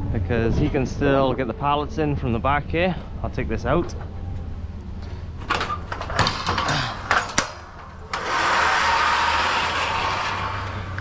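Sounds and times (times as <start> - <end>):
knocks and rattles: 5.4 - 11.0.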